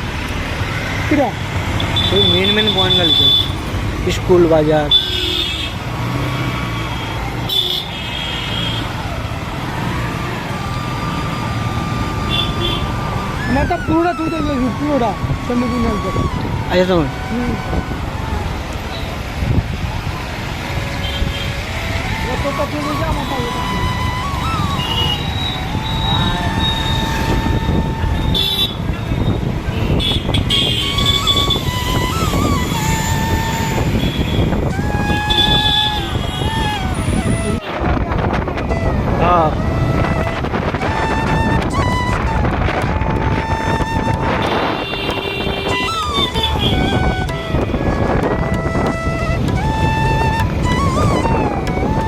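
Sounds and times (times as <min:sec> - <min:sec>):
road traffic rumble: 0:00.0 - 0:52.0
vehicle horn toots: 0:12.2 - 0:13.0, 0:24.8 - 0:31.6, 0:43.9 - 0:47.0.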